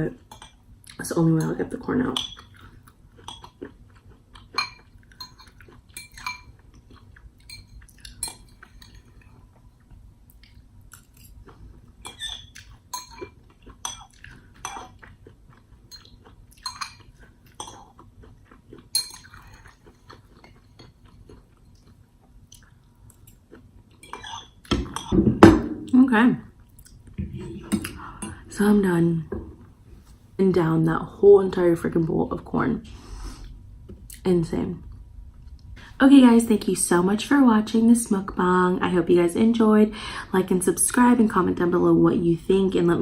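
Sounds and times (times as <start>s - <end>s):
chewing: 2.4s - 24.6s
cutlery scraping a bowl: 24.0s - 25.2s.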